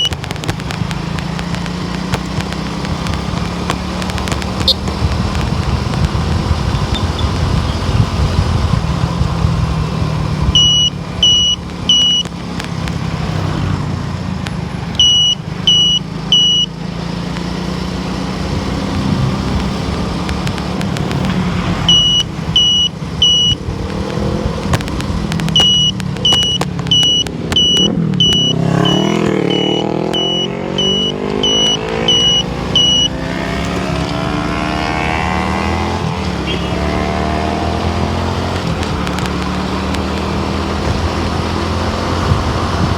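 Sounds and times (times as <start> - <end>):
short high electronic beeps: 0.0 - 0.2, 10.6 - 12.4, 15.0 - 16.8, 21.8 - 23.7, 25.5 - 33.3, 36.4 - 36.8
car engine and tyre hum: 0.0 - 42.9
vehicle passing whoosh: 17.7 - 42.9.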